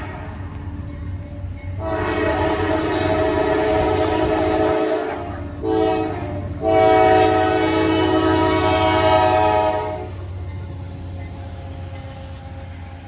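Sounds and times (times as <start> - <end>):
train running rumble: 0.0 - 13.0
locomotive air horn: 1.8 - 10.2.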